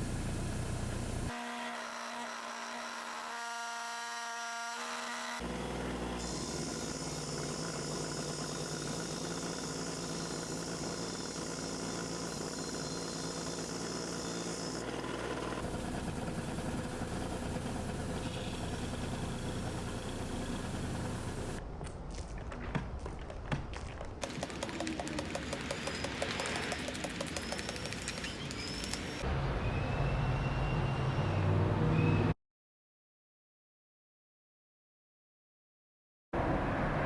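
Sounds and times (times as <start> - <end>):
power tool grinding: 1.3 - 21.6, 24.2 - 29.2.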